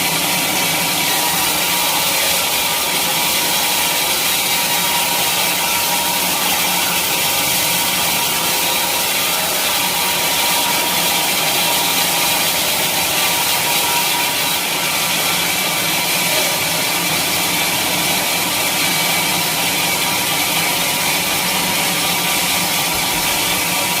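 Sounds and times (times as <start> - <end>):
saw blade cutting log: 0.0 - 24.0.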